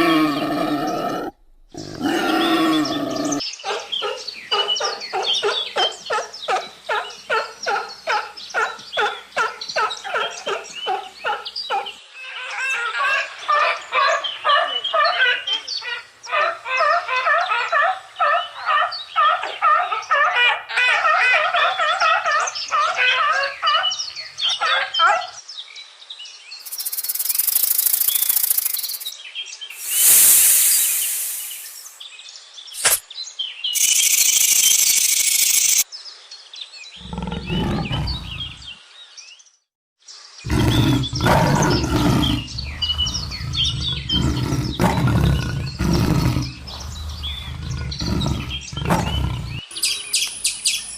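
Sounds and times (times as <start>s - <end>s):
short hissing bursts: 26.6s - 29.1s, 29.8s - 32.0s, 32.8s - 33.0s
bird-like animal calls: 29.8s - 31.9s, 37.0s - 38.7s, 40.5s - 50.0s
sharp click: 32.8s - 33.0s.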